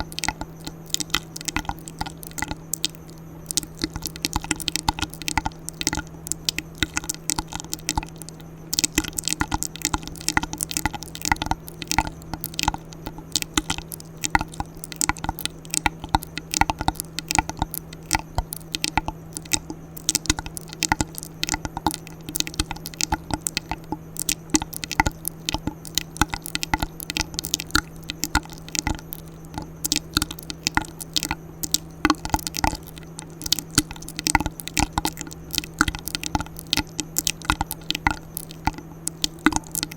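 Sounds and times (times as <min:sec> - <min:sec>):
faint steady hum: 0:00.0 - 0:39.9
wet mouth clicks and smacks: 0:00.0 - 0:39.9.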